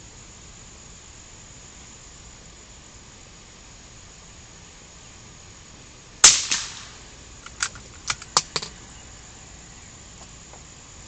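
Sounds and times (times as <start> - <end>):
gunshot with ringing tail: 6.2 - 7.1.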